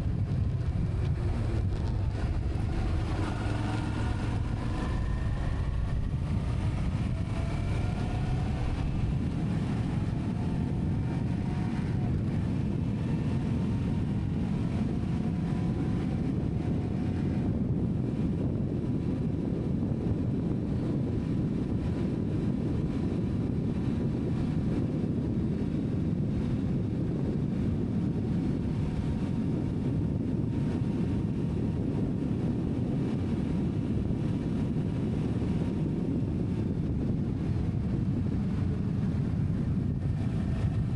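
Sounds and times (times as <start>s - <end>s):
engine tones rising and falling: 0.0s - 16.6s
vehicle rumbling: 0.0s - 40.9s.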